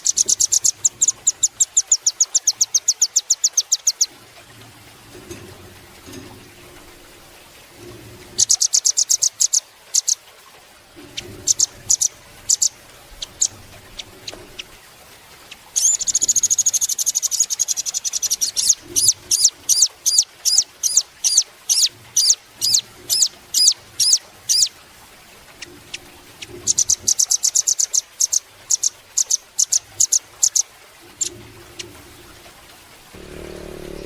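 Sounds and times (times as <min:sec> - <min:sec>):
bird singing high trills: 0:15.8 - 0:24.7.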